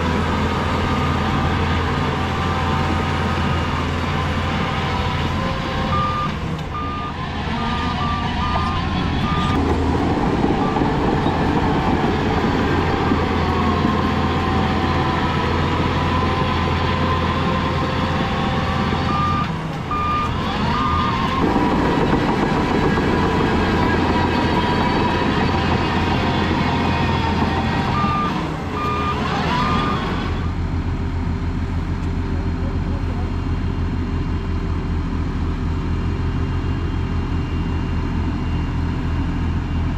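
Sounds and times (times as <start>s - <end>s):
heavy diesel machinery running: 0.0s - 39.9s
reversing alarm beeping: 5.8s - 14.1s, 18.6s - 30.5s.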